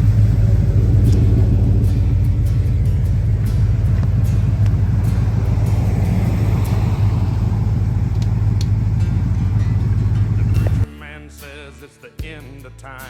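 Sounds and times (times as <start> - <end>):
truck engine running: 0.0 - 10.9.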